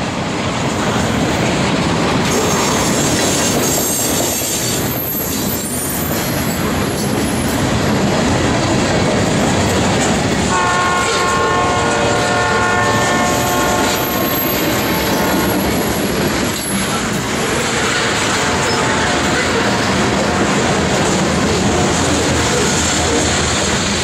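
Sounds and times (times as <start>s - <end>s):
freight train rumbling on rails: 0.0s - 24.0s
locomotive horn blast: 10.5s - 15.8s, 18.0s - 20.8s.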